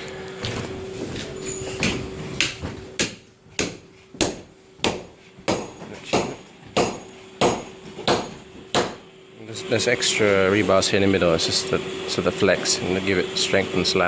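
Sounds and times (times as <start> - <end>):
hammer blows ringing: 1.8 - 9.0.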